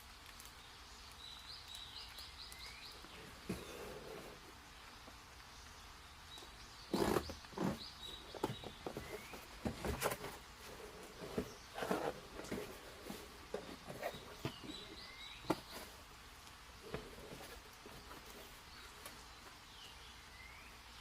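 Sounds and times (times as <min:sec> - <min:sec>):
bird chirping faintly: 0:00.4 - 0:21.0
knocks and rustles of handling: 0:03.1 - 0:04.5, 0:06.9 - 0:16.1, 0:16.8 - 0:19.6.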